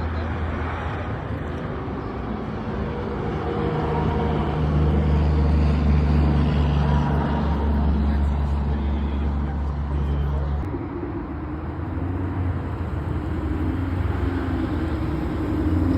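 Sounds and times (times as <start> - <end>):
car engine humming: 1.4 - 15.9.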